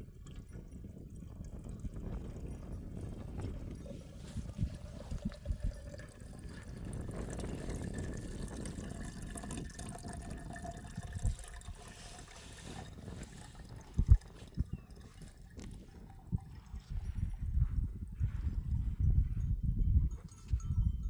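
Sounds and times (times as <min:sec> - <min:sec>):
running water: 0:03.8 - 0:16.7.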